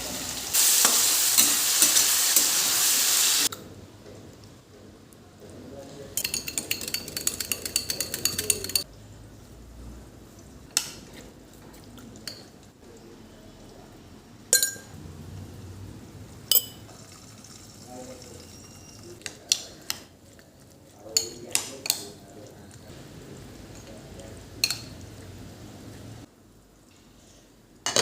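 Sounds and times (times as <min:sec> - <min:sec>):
metal utensils clinking: 0:06.2 - 0:08.9, 0:14.6 - 0:15.0, 0:16.5 - 0:19.2.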